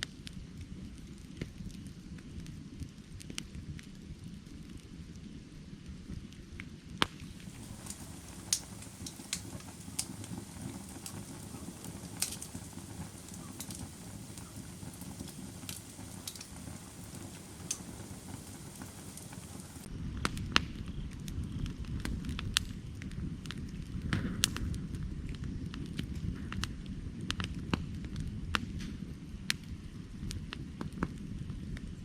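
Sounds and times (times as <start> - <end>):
burning wood crackling and popping: 0.0 - 32.0
flame rushing: 7.0 - 20.6.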